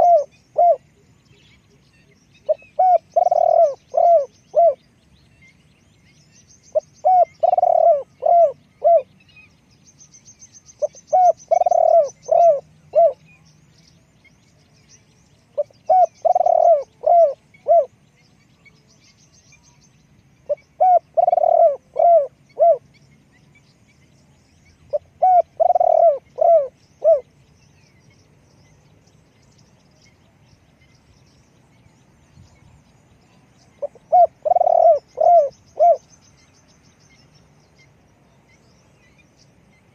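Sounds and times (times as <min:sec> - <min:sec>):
dove cooing: 0:00.0 - 0:00.9, 0:02.5 - 0:04.8, 0:06.7 - 0:09.1, 0:10.8 - 0:13.2, 0:15.6 - 0:17.9, 0:20.5 - 0:22.8, 0:24.9 - 0:27.2, 0:33.8 - 0:36.1.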